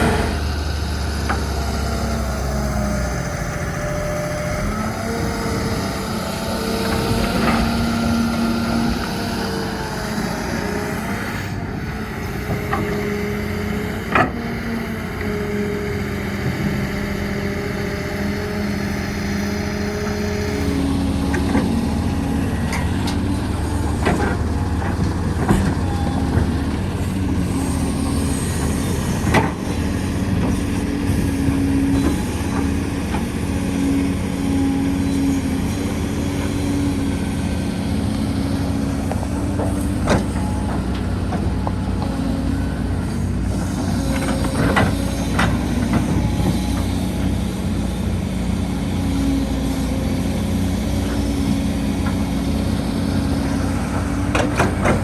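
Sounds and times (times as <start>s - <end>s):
diesel engines of heavy machinery: 0.0s - 55.0s.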